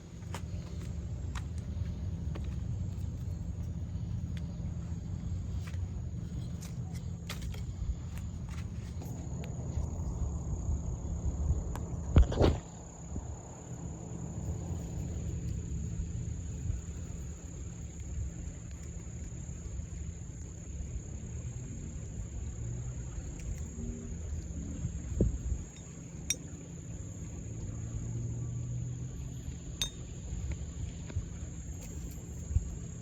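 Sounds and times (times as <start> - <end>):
low rumble: 0.0 - 16.6.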